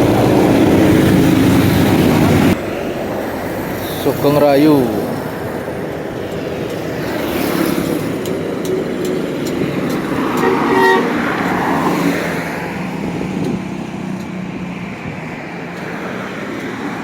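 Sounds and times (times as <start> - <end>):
bus passing at speed: 0.0 - 17.0
highway traffic passing: 0.0 - 17.0
vehicle horn: 10.2 - 11.9.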